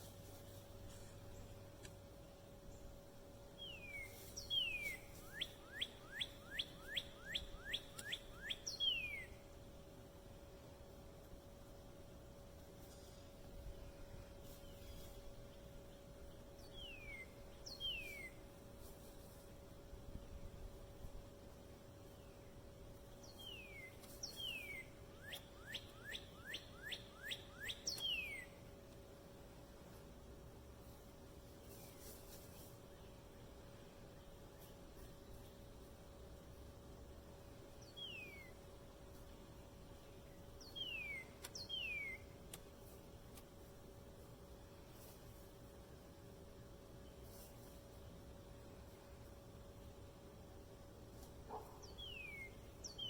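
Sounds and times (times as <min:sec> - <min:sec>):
faint steady hum: 0:00.0 - 0:53.0
songbird whistling: 0:03.6 - 0:09.4, 0:16.7 - 0:18.4, 0:23.2 - 0:28.6, 0:37.8 - 0:38.6, 0:40.6 - 0:42.3, 0:51.8 - 0:53.0.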